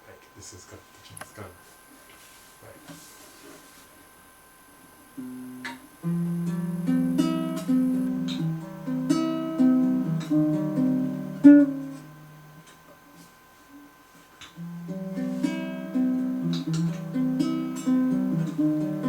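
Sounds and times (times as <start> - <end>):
acoustic guitar playing: 5.2 - 13.3, 14.4 - 19.0.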